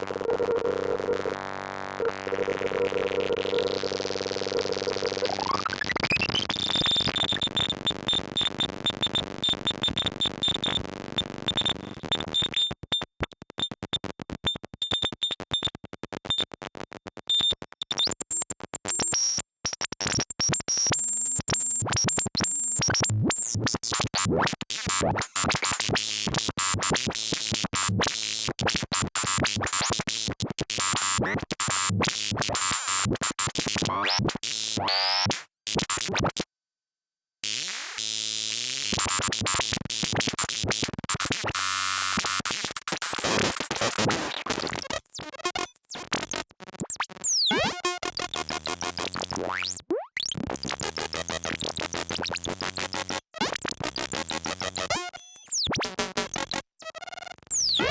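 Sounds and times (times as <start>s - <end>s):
harsh stuttering synthesizer: 0.0s - 6.6s.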